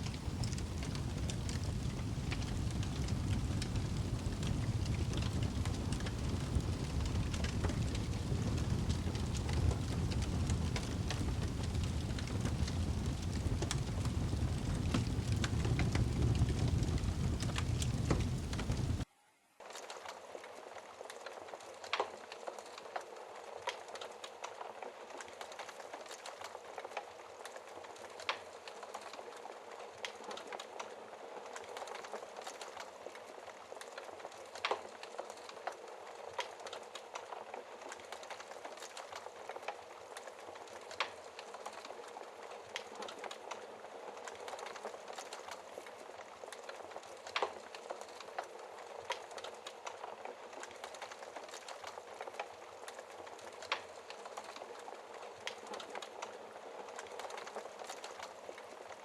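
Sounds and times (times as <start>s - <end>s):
loud fire pops: 0.0s - 19.0s
logs crackling in fireplace: 0.0s - 59.0s.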